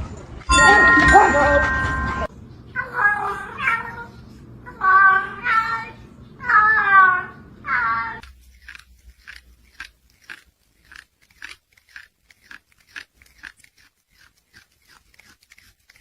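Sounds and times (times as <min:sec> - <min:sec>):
animal chewing crunchy food: 0:08.2 - 0:16.0.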